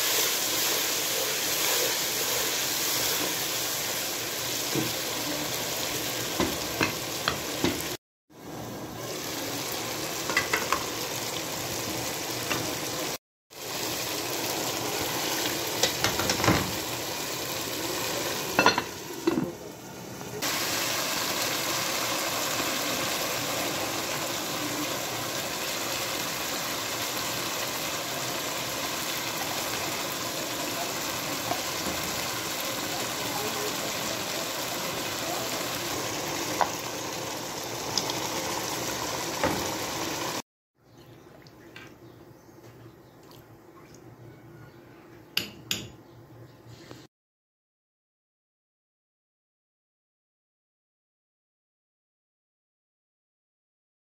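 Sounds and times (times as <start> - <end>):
food frying in oil: 0.0 - 40.4.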